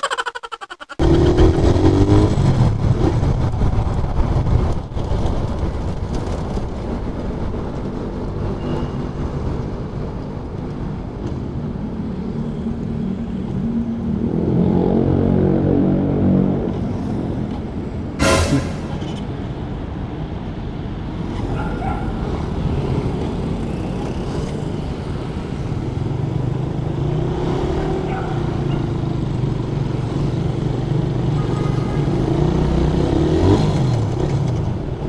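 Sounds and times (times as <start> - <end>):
road and wind noise: 0.8 - 35.0
motorcycle engine revving: 1.0 - 3.2.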